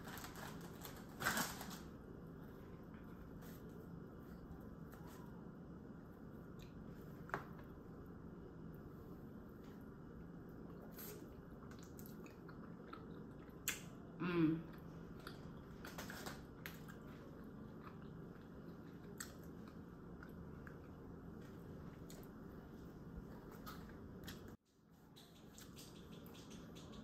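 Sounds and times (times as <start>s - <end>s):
person chewing pizza: 10.5s - 27.0s.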